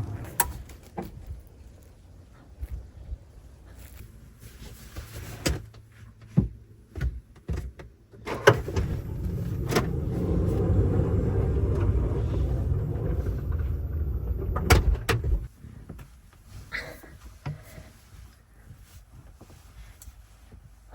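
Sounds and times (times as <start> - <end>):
low motor rumble: 0.0 - 2.4, 8.5 - 15.5.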